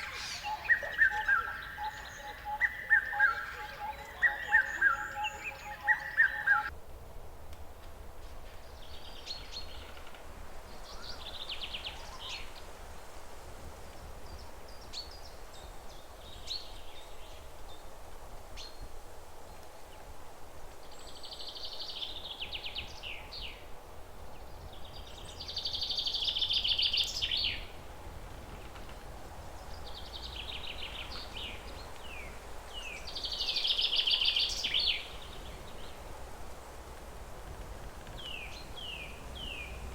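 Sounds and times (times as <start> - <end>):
bird singing buzzy trills: 0.0 - 6.7.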